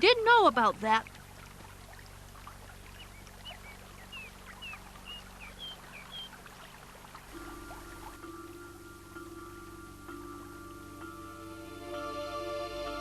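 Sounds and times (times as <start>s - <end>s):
faint steady hiss: 0.0s - 13.0s
small birds chirping: 2.6s - 11.1s.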